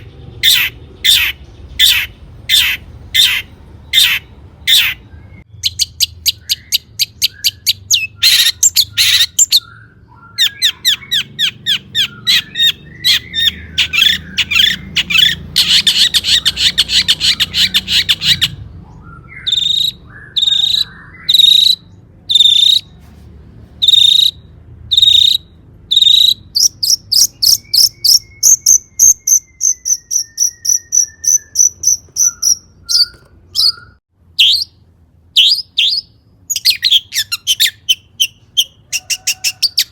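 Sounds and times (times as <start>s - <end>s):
shrike singing: 23.8s - 34.8s.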